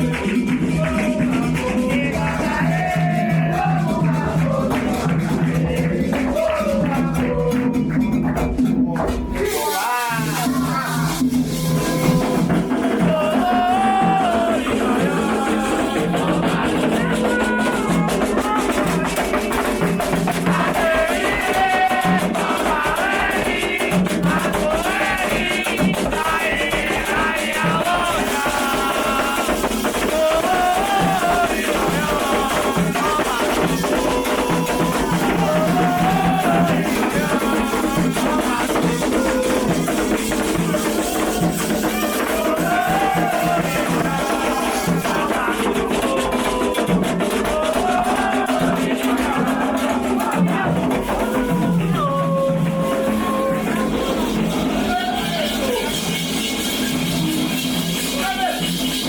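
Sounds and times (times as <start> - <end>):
chant singing: 0.0 - 8.3, 9.0 - 56.4
hand drumming: 0.0 - 56.4
shaken rattle: 17.3 - 51.4.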